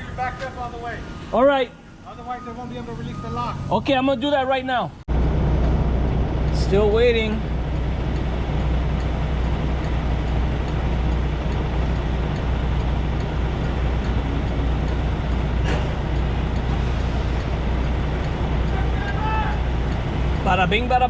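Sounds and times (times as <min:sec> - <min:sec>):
diesel truck engine idling: 0:04.9 - 0:21.0
faint regular ticking: 0:07.4 - 0:21.0.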